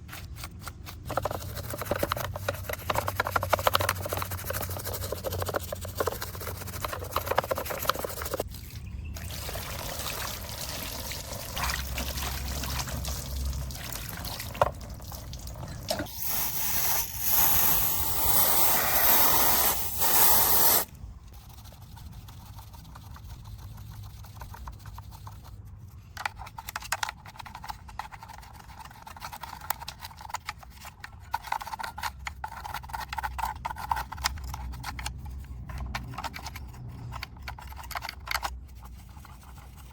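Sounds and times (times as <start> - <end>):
small scrapes and taps: 0.0 - 8.5
water dripping and splashing: 9.2 - 16.0
spray hiss: 16.1 - 20.9.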